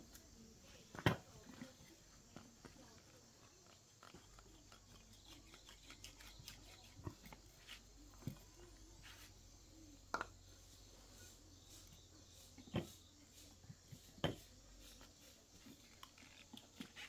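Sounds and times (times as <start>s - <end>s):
faint clicks and taps: 0.1s - 10.8s.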